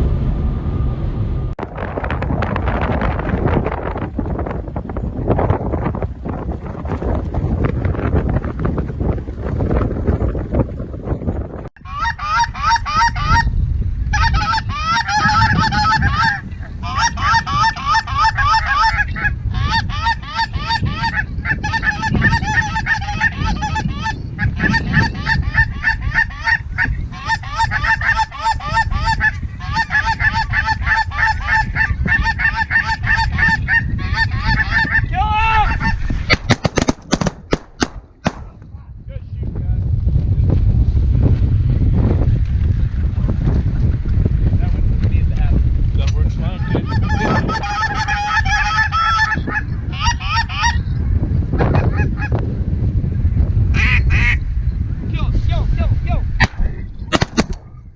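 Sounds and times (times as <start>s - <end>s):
low wind rumble: 0.0s - 57.9s
geese honking: 11.8s - 13.5s, 14.1s - 36.1s, 46.7s - 50.8s, 53.8s - 54.4s
shotgun volley: 36.3s - 38.7s, 56.4s - 57.8s.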